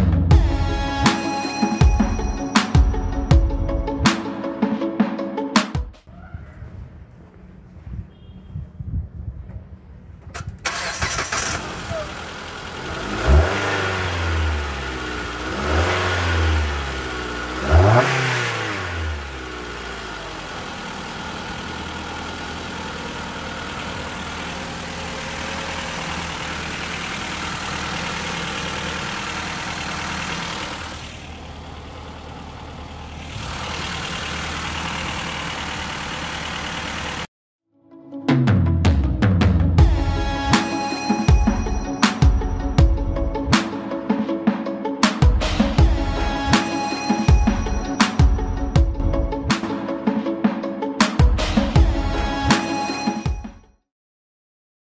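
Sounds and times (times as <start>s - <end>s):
car engine revving and idling: 10.6s - 37.3s.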